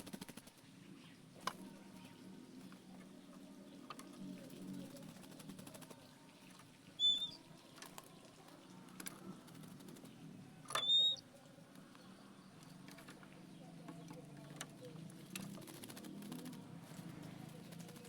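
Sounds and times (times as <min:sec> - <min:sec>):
faint clicks and pattering: 0:00.0 - 0:18.0
bird whistled notes: 0:07.0 - 0:07.4, 0:10.7 - 0:11.2.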